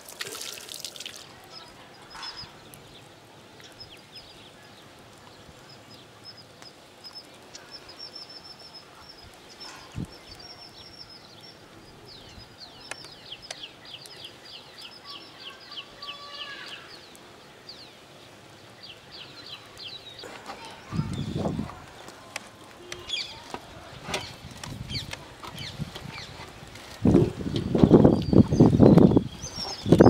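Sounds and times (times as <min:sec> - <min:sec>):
small birds chirping: 0:00.4 - 0:30.0.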